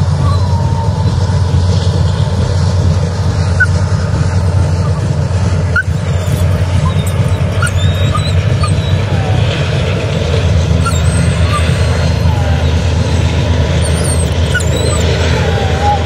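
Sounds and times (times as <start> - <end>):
freight train rumbling past: 0.0 - 16.0
high squeaks: 5.8 - 9.4, 10.7 - 16.0.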